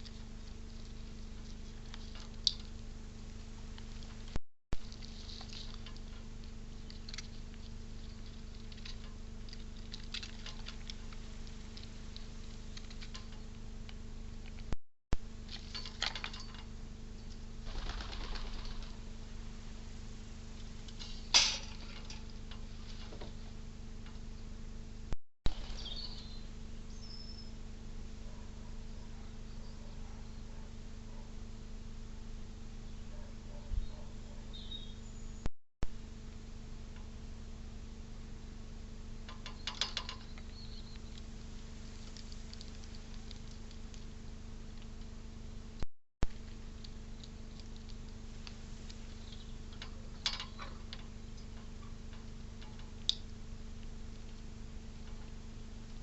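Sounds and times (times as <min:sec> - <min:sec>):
scrabbling at bird feeder: 0:00.0 - 0:13.6, 0:46.4 - 0:56.0
steady low hum: 0:00.0 - 0:56.0
bird wings flapping: 0:17.6 - 0:19.1.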